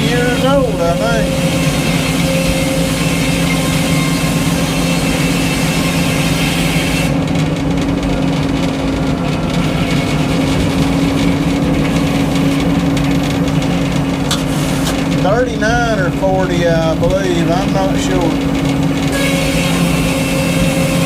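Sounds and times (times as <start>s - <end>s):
saw blade cutting log: 0.0s - 7.2s, 19.1s - 21.0s
sawmill power unit humming: 0.0s - 21.0s.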